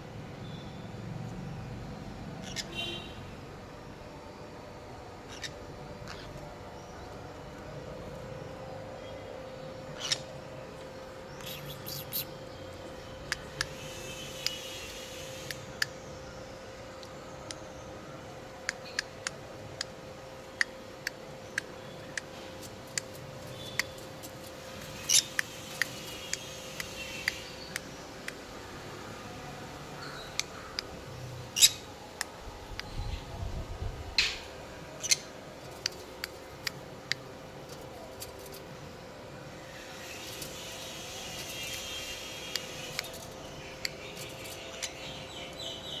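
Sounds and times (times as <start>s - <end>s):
faint steady hum: 0.0s - 46.0s
small birds chirping: 5.2s - 7.4s, 9.0s - 18.0s, 18.7s - 28.5s, 35.0s - 38.7s, 39.6s - 46.0s
bird clicks: 20.6s - 24.4s, 25.1s - 28.4s, 35.0s - 38.6s, 42.5s - 43.2s, 43.8s - 44.9s.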